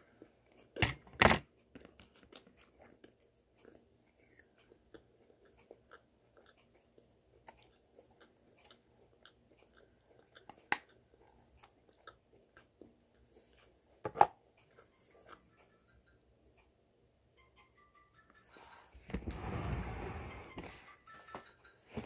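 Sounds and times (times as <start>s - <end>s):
close-up chewing of food: 1.7s - 14.0s.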